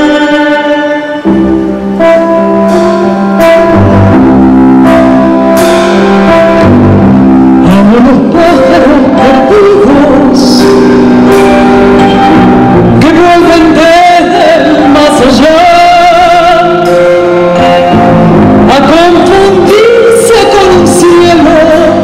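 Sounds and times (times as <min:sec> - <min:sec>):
acoustic guitar chords: 0:00.0 - 0:22.0
person singing: 0:07.5 - 0:22.0.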